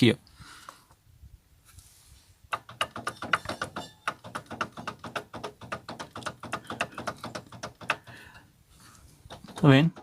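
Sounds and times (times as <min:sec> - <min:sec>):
metal gearshift linkage clicking: 0:02.5 - 0:08.1, 0:09.2 - 0:10.0.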